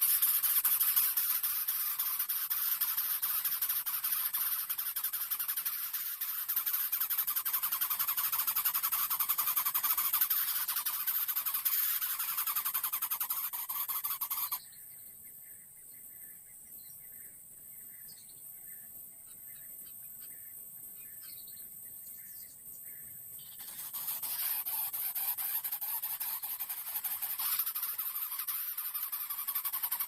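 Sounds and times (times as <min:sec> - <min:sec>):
chick rasping begging calls: 0:00.0 - 0:14.6, 0:23.6 - 0:30.0
steady high hiss: 0:00.0 - 0:14.8, 0:16.8 - 0:30.0
faint chirps: 0:00.0 - 0:30.0.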